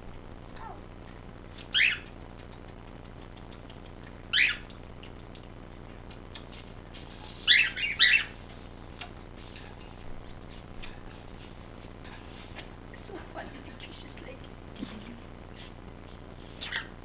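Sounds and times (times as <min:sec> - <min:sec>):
cockatiel chirping: 0:01.6 - 0:02.2, 0:04.2 - 0:04.8, 0:07.2 - 0:08.5, 0:16.6 - 0:16.9.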